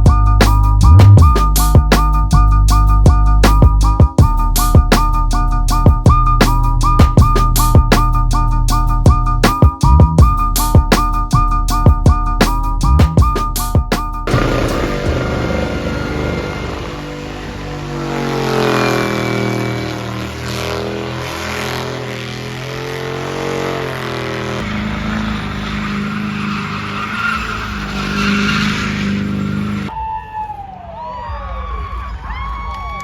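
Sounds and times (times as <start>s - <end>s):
truck engine revving: 14.2s - 29.9s
tyres squealing: 14.3s - 29.9s.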